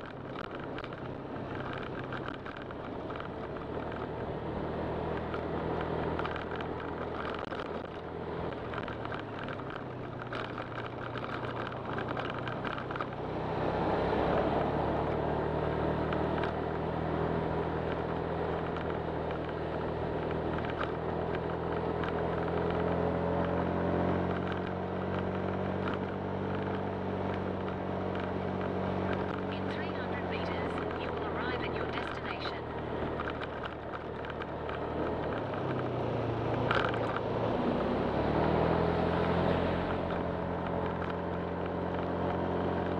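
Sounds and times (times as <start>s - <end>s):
scooter engine running: 0.0s - 42.9s
wind and road rush: 0.0s - 42.9s.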